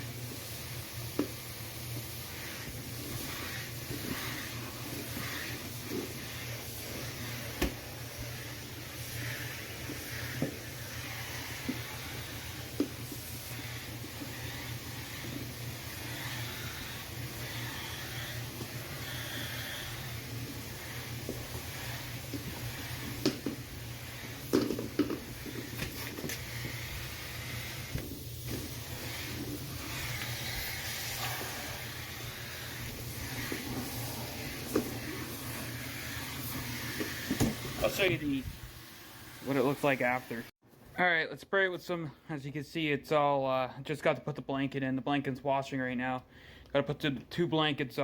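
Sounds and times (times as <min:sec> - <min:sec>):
vacuum cleaner running: 0:00.0 - 0:40.4
vacuum tool knocking furniture: 0:07.5 - 0:07.9, 0:22.3 - 0:23.7, 0:24.4 - 0:26.4, 0:37.2 - 0:37.8.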